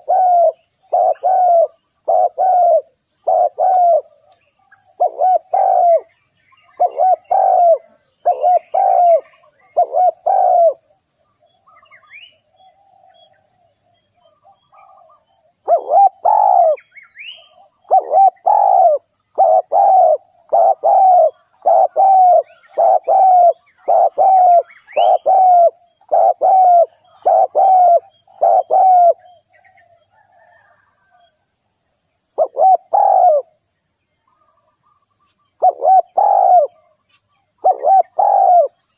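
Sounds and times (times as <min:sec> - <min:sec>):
dove cooing: 0:00.0 - 0:04.3, 0:04.9 - 0:10.8, 0:14.3 - 0:31.3, 0:32.4 - 0:33.6, 0:35.6 - 0:37.0, 0:37.6 - 0:38.9
small birds chirping: 0:00.0 - 0:31.4, 0:32.2 - 0:38.9.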